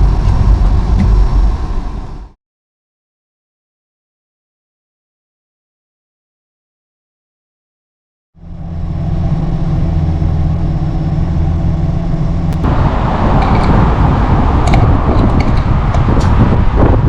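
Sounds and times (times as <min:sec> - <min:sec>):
car engine running: 0:00.0 - 0:02.4, 0:08.4 - 0:17.0
road noise: 0:00.0 - 0:02.4, 0:08.4 - 0:17.0.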